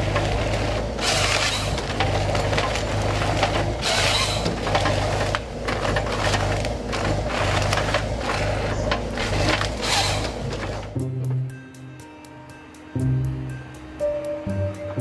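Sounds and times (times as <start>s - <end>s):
wood cracking and clicking: 0.0s - 10.9s
log feeding and cutting noise: 0.0s - 11.0s
harvester engine running: 0.0s - 11.6s.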